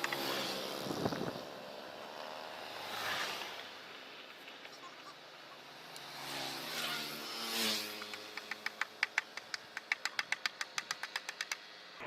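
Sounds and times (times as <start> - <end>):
vehicle passing: 0.0 - 3.9, 5.6 - 8.8
sharp clicks: 8.0 - 11.8.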